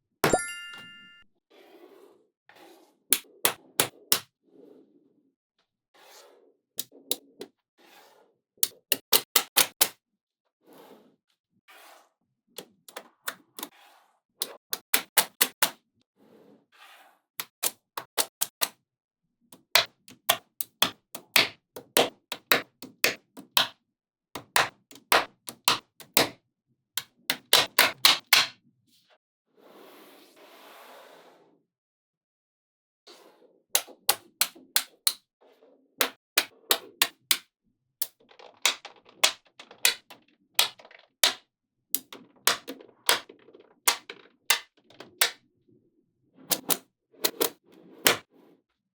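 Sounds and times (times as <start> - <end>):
magnetic balls snapping together: 8.6 - 9.9, 14.4 - 15.7, 19.6 - 23.7, 24.4 - 26.4, 27.0 - 28.5, 33.8 - 35.2, 36.0 - 37.4, 38.0 - 41.4, 42.0 - 45.4, 46.5 - 48.2
rattle of balls: 38.0 - 45.4.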